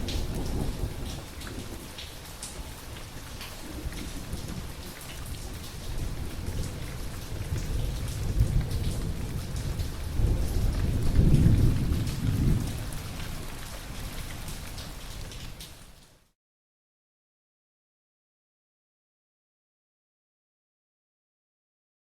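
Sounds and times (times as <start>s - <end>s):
rolling thunder rumble: 0.0s - 2.3s, 3.5s - 13.6s
steady rain falling: 0.0s - 16.4s.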